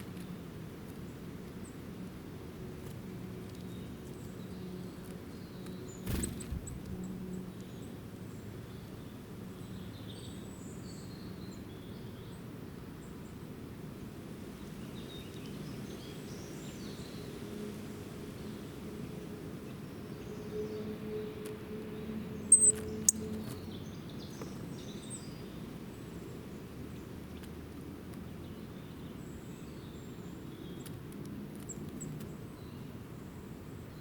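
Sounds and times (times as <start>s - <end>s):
small birds chirping: 2.8s - 13.4s, 22.4s - 34.0s.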